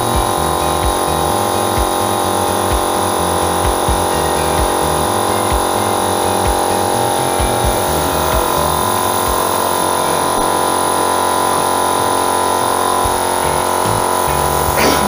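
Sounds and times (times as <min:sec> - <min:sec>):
compressor motor buzzing: 0:00.0 - 0:15.0.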